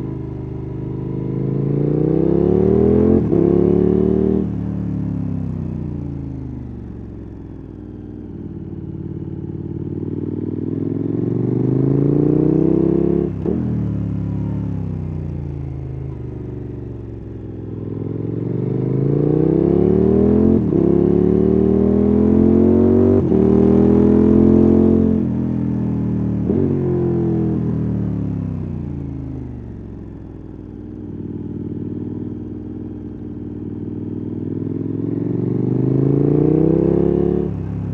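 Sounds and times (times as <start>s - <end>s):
motorcycle engine revving: 0.8s - 5.3s, 9.8s - 14.2s, 17.8s - 25.4s, 33.6s - 37.9s.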